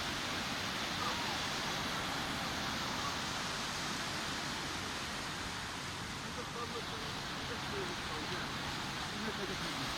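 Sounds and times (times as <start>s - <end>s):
sea surf washing on beach: 0.0s - 9.9s.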